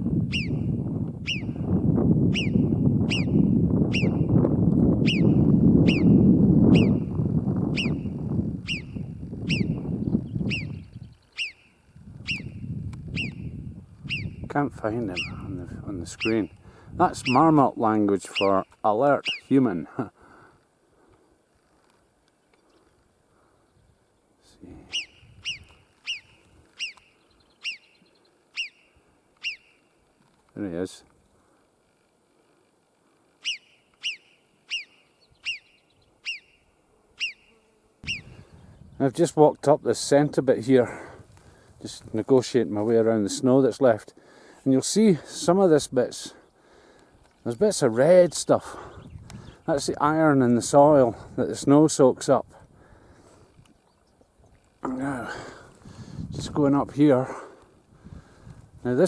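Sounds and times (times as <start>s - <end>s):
marmot alarm whistles: 0.3s - 1.6s, 2.3s - 4.4s, 5.0s - 7.1s, 7.7s - 14.5s, 24.9s - 29.8s, 33.4s - 36.6s, 37.2s - 38.4s.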